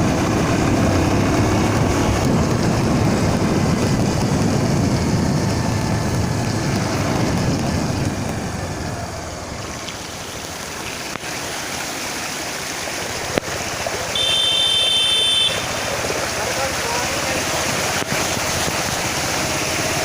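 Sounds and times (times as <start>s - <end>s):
wind on microphone: 0.0s - 8.8s
floodwater rushing: 0.0s - 20.0s.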